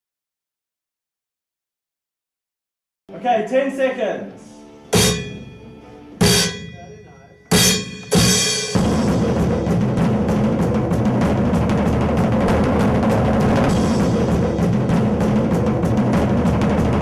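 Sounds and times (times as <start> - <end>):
rock music with fast drums: 5.0 - 6.8, 7.5 - 17.0.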